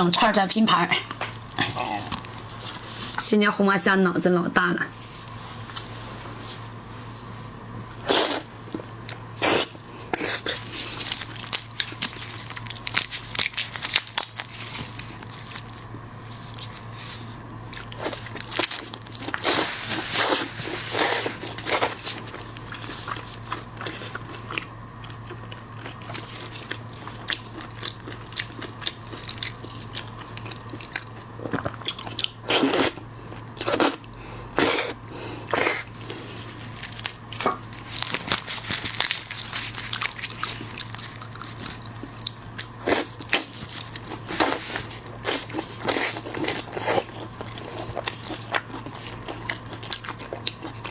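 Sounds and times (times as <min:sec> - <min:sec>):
crunchy chewing: 0:07.9 - 0:50.9.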